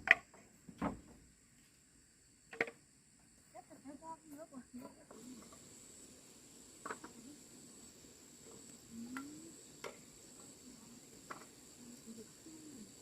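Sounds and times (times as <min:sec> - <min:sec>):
crickets trilling: 0:00.0 - 0:13.0
faint clicks: 0:08.6 - 0:10.0.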